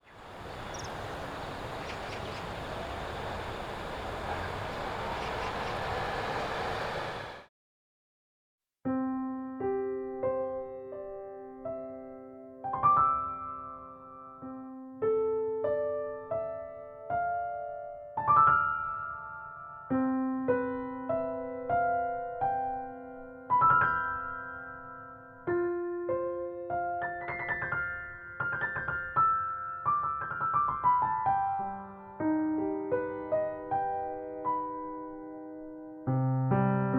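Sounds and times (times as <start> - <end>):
outdoor background hiss: 0.0 - 7.5
solo piano music: 8.8 - 36.9.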